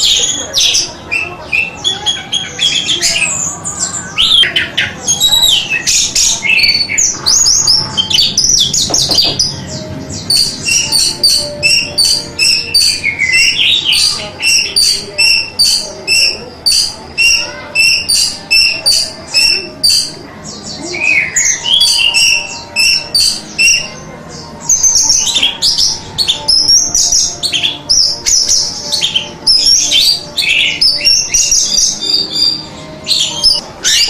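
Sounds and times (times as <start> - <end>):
thrush singing: 0.0 - 34.0.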